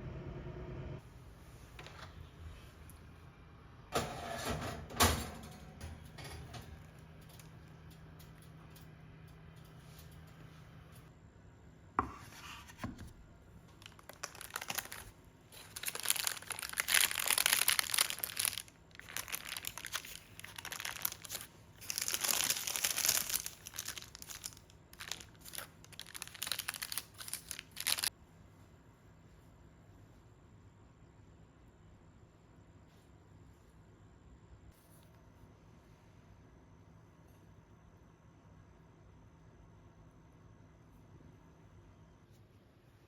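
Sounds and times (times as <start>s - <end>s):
wrapping crinkled and torn: 13.7s - 28.1s.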